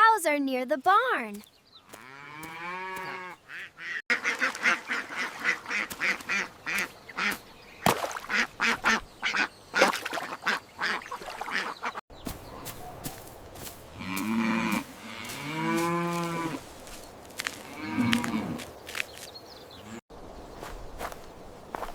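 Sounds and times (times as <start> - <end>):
ducks quacking: 1.9 - 7.4, 8.2 - 13.2.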